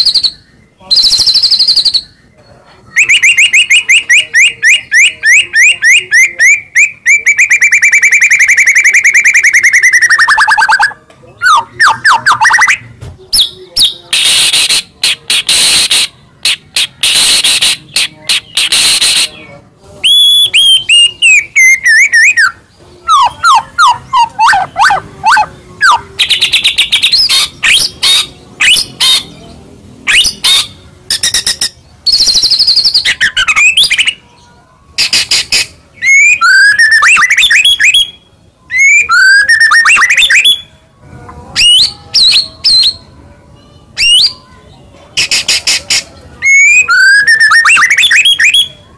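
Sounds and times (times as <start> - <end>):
bird whistling song: 0.0 - 2.3, 2.9 - 29.3, 30.0 - 34.2, 35.0 - 40.8, 41.6 - 43.2, 44.0 - 44.6, 45.2 - 48.8
harsh rasping bird calls: 0.0 - 2.3, 2.9 - 34.4.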